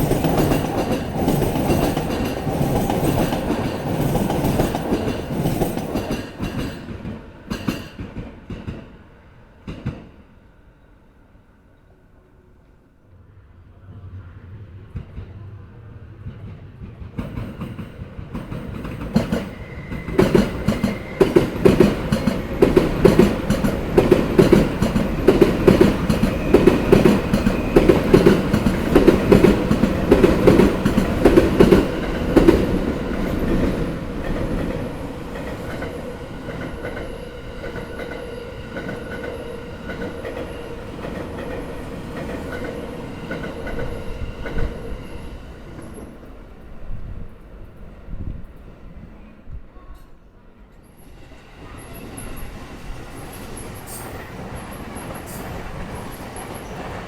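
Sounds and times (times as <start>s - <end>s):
train running with held tone: 0.0s - 9.0s, 13.2s - 48.6s, 49.2s - 57.0s
train wheels clacking over rail joints: 16.9s - 34.8s.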